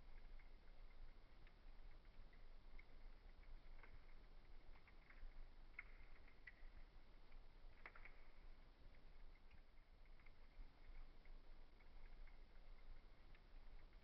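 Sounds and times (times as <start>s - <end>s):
low hiss: 0.0s - 14.0s
wood fire crackling: 0.0s - 14.0s.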